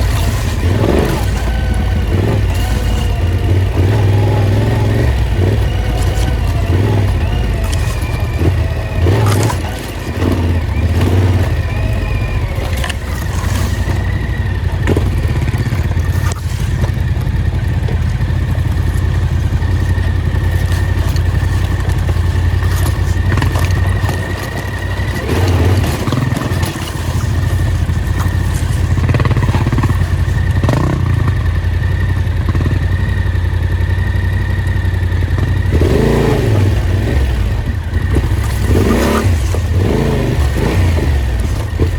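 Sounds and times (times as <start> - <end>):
knocks and rattles: 0.0 - 31.6
off-road vehicle engine: 0.0 - 41.9.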